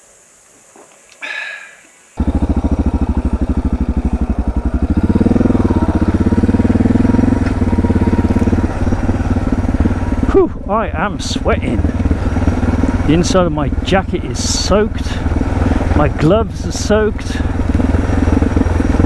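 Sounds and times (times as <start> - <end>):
motorcycle engine running: 2.2 - 19.0.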